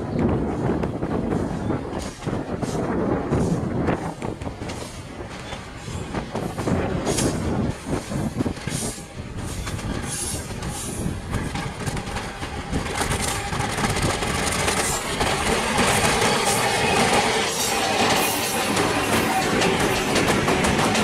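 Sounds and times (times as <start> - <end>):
train wheels rumbling on rails: 0.0 - 21.0
locomotive engine running: 4.2 - 21.0.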